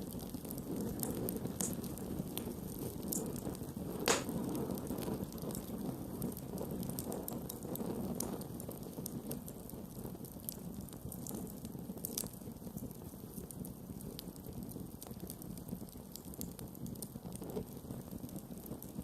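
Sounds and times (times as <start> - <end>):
wood crackling and popping: 0.0 - 19.0.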